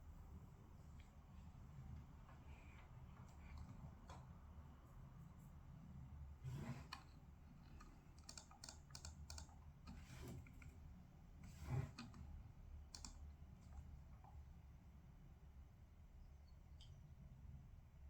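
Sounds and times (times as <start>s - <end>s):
typing on computer keyboard: 7.8s - 9.6s, 12.9s - 13.2s.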